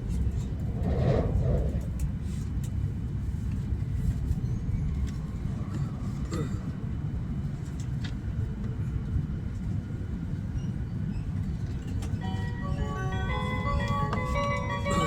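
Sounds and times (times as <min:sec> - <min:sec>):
train rumbling from inside: 0:00.0 - 0:15.0
chime melody: 0:12.2 - 0:15.0.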